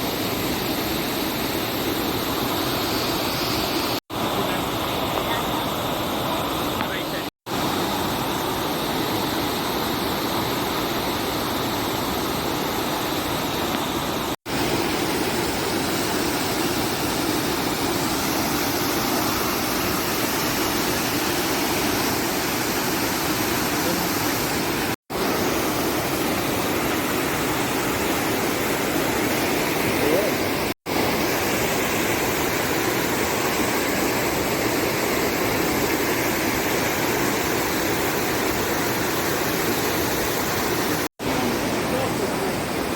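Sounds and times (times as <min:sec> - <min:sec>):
river rushing over rocks: 0:09.8 - 0:42.9.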